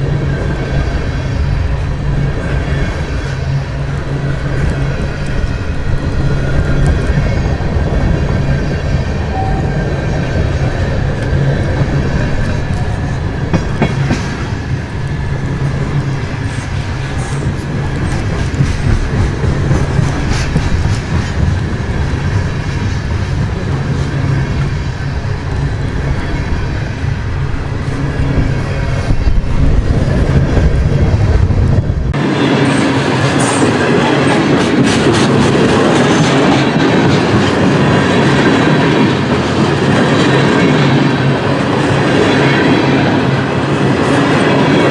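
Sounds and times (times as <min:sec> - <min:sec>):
steel wheels clicking over rail joints: 0:00.0 - 0:31.8
freight train cars rolling: 0:00.0 - 0:44.9.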